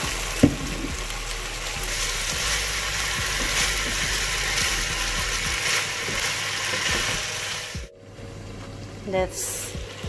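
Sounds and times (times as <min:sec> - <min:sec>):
meat sizzling in a pan: 0:00.0 - 0:07.9.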